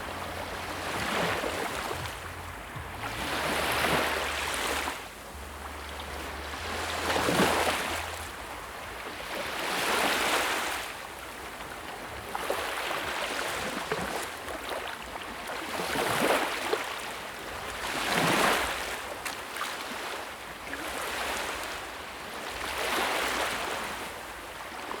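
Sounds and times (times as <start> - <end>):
sea waves breaking: 0.0 - 14.9.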